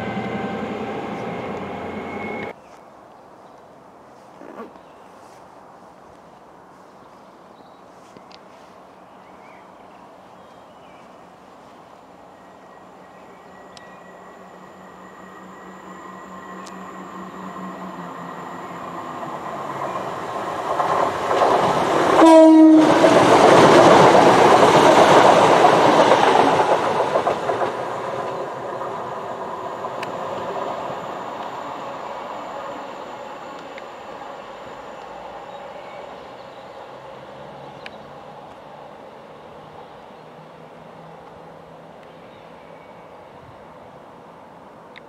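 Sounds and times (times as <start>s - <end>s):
train passing at speed: 0.0s - 2.6s, 7.9s - 45.0s
train horn blast: 22.2s - 23.0s.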